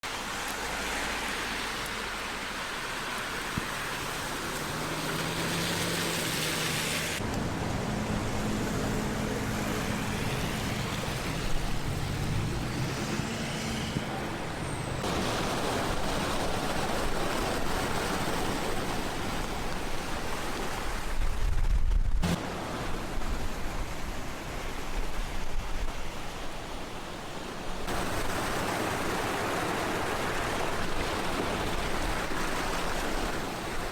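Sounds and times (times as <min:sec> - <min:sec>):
steady traffic rushing noise: 0:00.0 - 0:33.9
vehicle engines running: 0:03.5 - 0:17.5.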